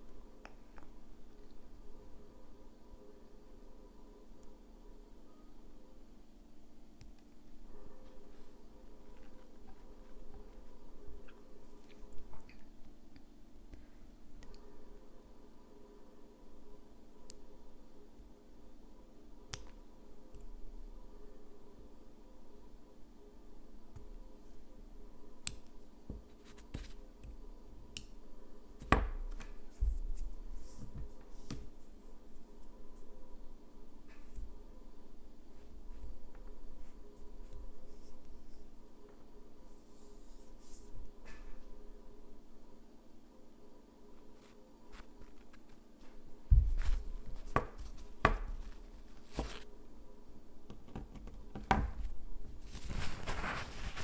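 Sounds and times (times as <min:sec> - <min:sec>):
soft scratchy rustling: 0:44.2 - 0:49.7, 0:52.5 - 0:54.0.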